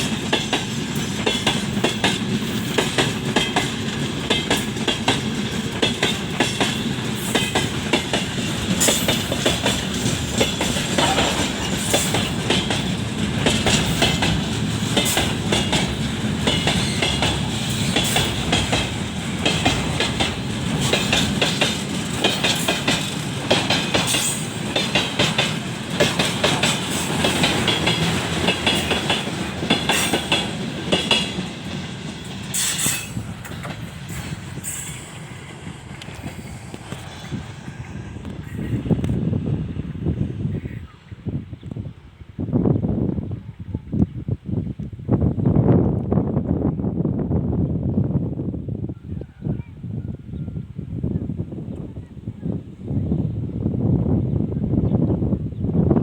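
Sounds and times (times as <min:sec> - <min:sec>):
train wheels clicking over rails: 0:00.0 - 0:40.0.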